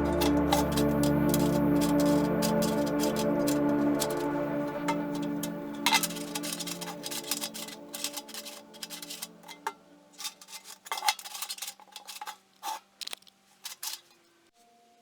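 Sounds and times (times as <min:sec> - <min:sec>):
background music: 0:00.0 - 0:10.5.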